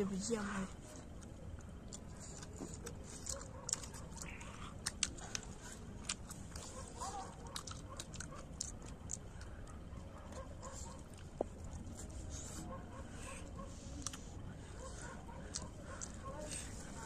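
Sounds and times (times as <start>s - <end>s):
people chewing: 0.0s - 17.0s
mouth clicks and smacks: 1.2s - 9.6s.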